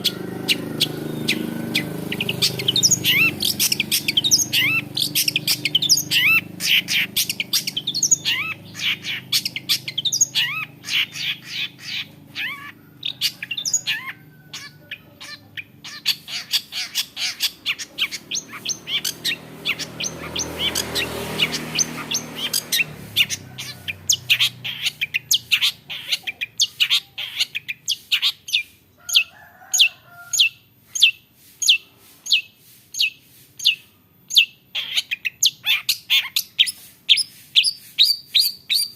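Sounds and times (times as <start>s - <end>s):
bird singing sharp high notes: 0.0s - 28.7s.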